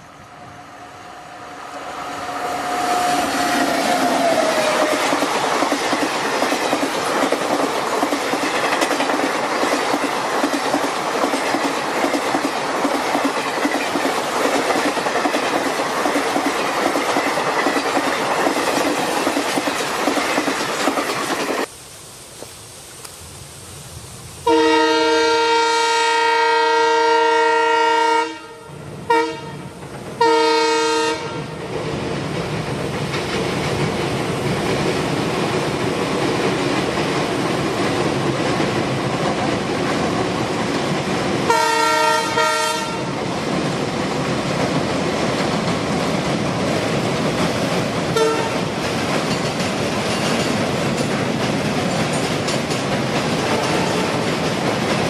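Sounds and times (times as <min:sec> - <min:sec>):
train rushing and rattling past: 0:00.0 - 0:21.8, 0:23.2 - 0:55.0
train horn blasts: 0:00.4 - 0:05.0, 0:24.4 - 0:31.6, 0:41.5 - 0:43.1, 0:48.2 - 0:48.6, 0:53.5 - 0:54.1.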